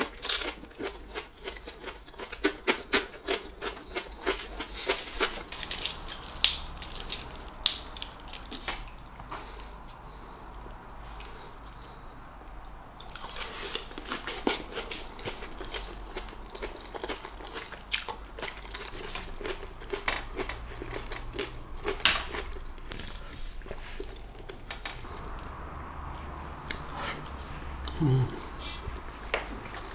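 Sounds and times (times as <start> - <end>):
person chewing and eating: 0.0 - 29.9.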